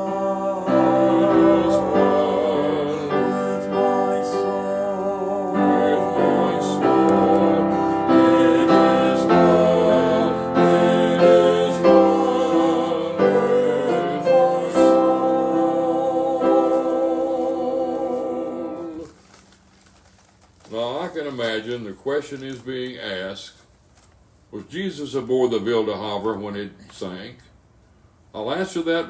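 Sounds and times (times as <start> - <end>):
held melody with vibrato: 0.0 - 19.1
piano chords: 0.0 - 19.1.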